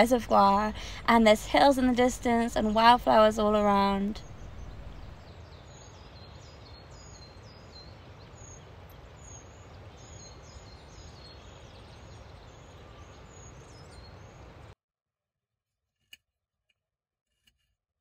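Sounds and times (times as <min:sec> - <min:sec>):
steady background noise: 0:00.0 - 0:05.3
birds chirping: 0:00.0 - 0:14.8.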